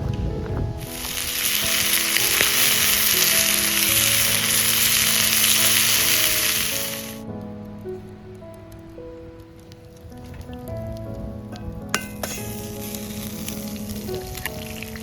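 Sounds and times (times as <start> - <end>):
food sizzling in a pan: 0.9 - 7.2, 12.0 - 15.0.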